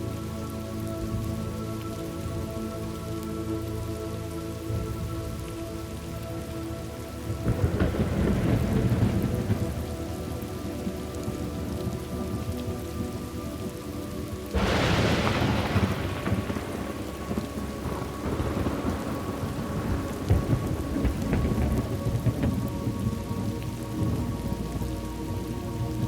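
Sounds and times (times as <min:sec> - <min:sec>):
steady rain: 0:00.0 - 0:26.0
thunder crack and rumble: 0:07.3 - 0:26.0.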